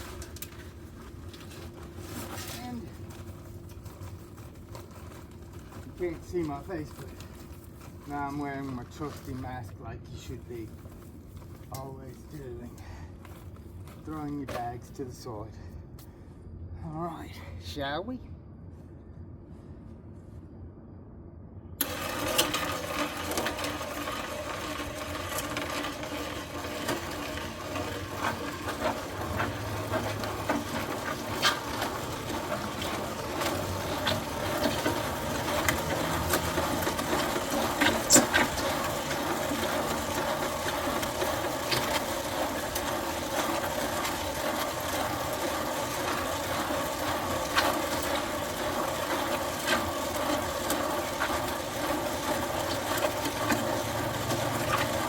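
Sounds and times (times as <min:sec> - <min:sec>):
electric mixer running: 0:21.8 - 0:55.0.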